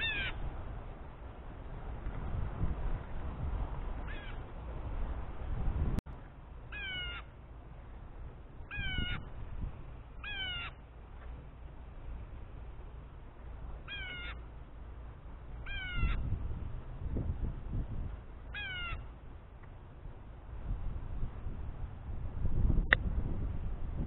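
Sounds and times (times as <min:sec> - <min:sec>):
harsh bird calls: 0:00.0 - 0:00.4, 0:06.7 - 0:07.3, 0:08.7 - 0:09.3, 0:10.2 - 0:10.8, 0:13.9 - 0:14.4, 0:15.6 - 0:16.3, 0:18.5 - 0:19.1
low steady rumble: 0:00.0 - 0:24.0.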